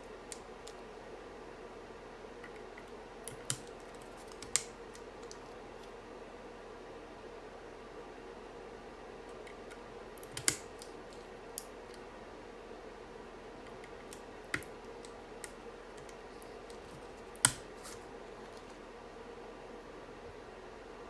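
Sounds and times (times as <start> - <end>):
keyboard plastic clicks: 2.4 - 5.4, 9.3 - 12.0.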